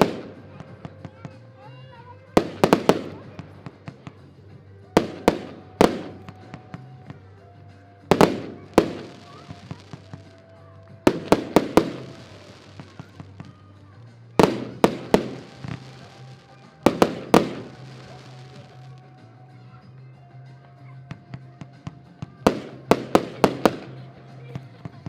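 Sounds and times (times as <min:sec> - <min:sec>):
firework bangs ringing out: 0:02.4 - 0:03.6, 0:05.0 - 0:06.8, 0:08.1 - 0:10.4, 0:11.0 - 0:13.5, 0:14.4 - 0:18.9, 0:22.4 - 0:24.1.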